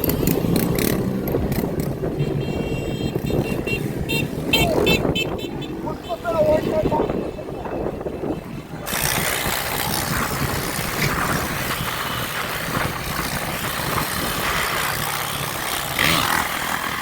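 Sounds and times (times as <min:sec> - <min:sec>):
motorbike engines running: 0:00.0 - 0:17.0.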